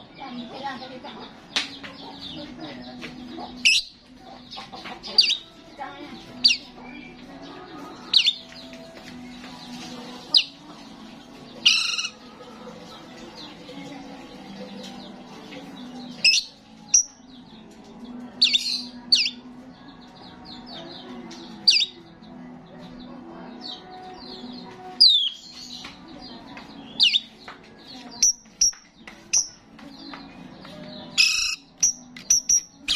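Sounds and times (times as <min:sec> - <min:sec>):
soft bird chatter: 0:00.0 - 0:32.9
starling squawking: 0:11.7 - 0:12.2.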